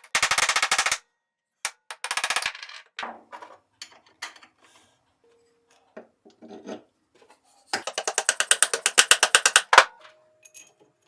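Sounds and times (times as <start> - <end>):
light metal knocks and clinks: 10.4 - 10.9.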